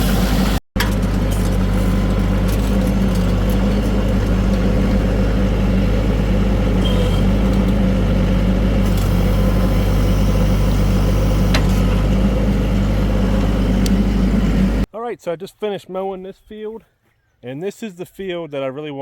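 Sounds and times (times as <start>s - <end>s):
tractor diesel engine running: 0.0s - 14.9s.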